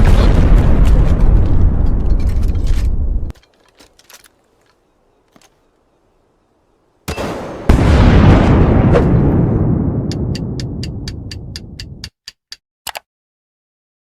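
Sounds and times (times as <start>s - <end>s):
loud dense rumbling: 0.0s - 3.3s.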